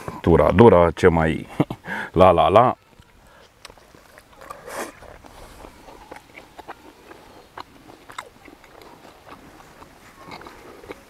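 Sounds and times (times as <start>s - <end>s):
person chewing steak: 2.8s - 11.0s
wet mouth clicks: 2.8s - 11.0s.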